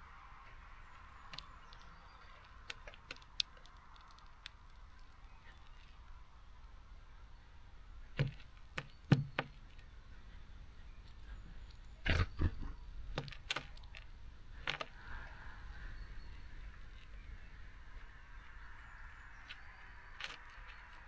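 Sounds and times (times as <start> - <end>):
birds tapping on a feeder: 0.5 - 6.1, 8.1 - 9.9.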